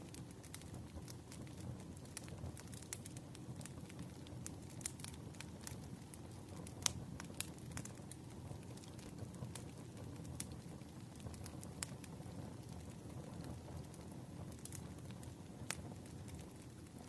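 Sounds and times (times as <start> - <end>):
low burning hiss: 0.0 - 17.0
wood fire crackling and popping: 0.0 - 17.0.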